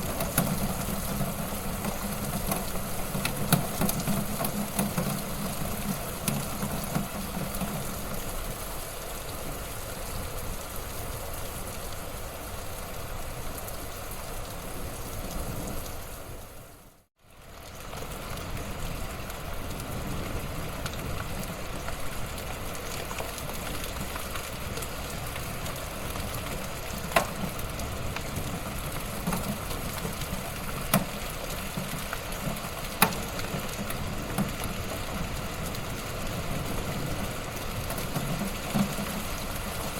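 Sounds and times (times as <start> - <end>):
burning wood popping: 0.0 - 8.3, 23.0 - 39.9
wood fire crackling: 0.0 - 39.9.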